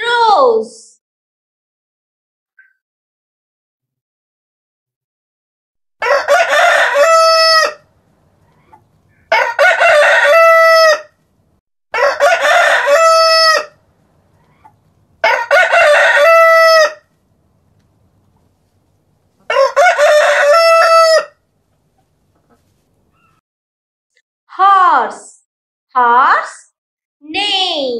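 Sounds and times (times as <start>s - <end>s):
rooster crowing: 6.0s - 7.9s, 9.3s - 11.2s, 11.9s - 13.8s, 15.2s - 17.1s, 19.5s - 21.4s.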